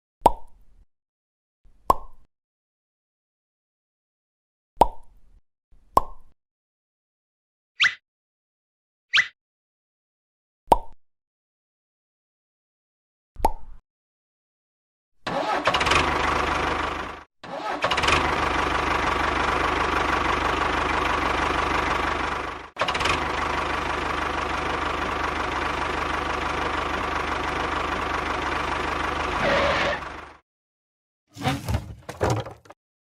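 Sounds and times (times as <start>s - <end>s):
tractor engine running: 15.3s - 30.4s.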